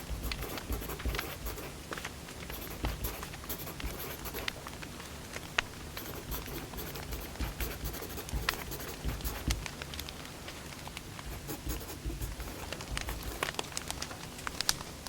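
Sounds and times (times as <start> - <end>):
firewood crackling and popping: 9.6 - 11.3, 12.8 - 15.0.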